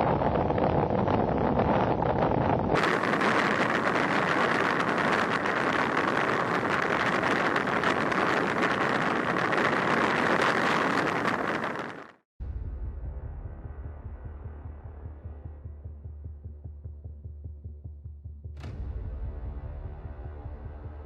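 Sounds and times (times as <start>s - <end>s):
vehicle road and wind noise: 0.0s - 12.2s.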